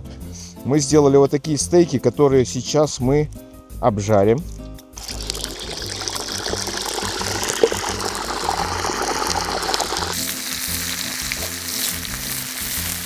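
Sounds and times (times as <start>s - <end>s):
background music: 0.0s - 13.0s
meat sizzling in hot oil: 5.0s - 13.0s
rushing hiss: 5.4s - 13.0s.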